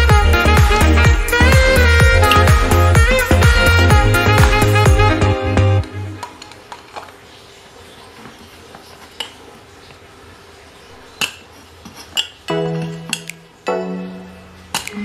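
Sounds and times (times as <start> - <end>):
background music: 0.0 - 6.3, 12.5 - 15.0.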